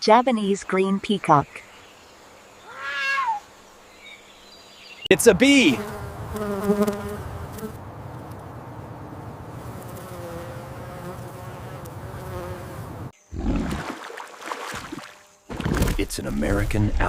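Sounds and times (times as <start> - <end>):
bees buzzing: 5.2 - 15.8.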